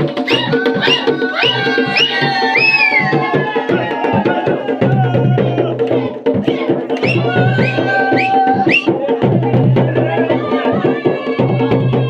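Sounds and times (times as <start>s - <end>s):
rapid dense drumming: 0.0s - 12.0s.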